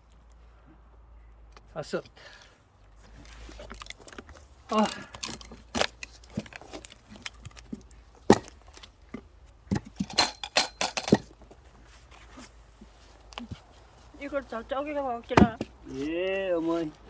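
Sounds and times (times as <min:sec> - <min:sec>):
light knocks and clinks: 0:03.1 - 0:11.6.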